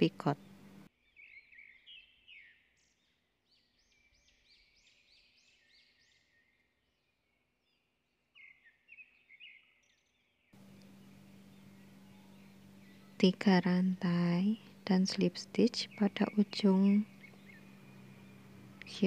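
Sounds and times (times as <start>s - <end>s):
faint bird chirping: 0.0s - 19.0s.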